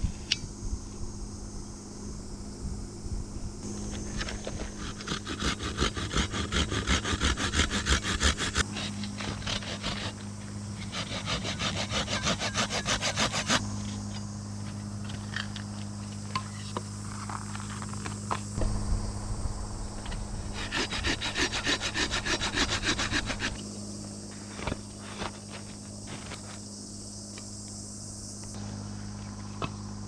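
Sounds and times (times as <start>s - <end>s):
hand saw cutting firewood: 3.6s - 13.6s, 20.5s - 23.6s.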